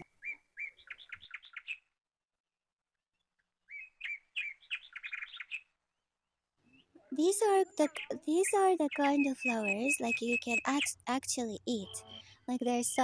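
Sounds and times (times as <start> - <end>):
small bird chirping: 0.0 - 1.8, 3.7 - 5.7, 6.7 - 13.0.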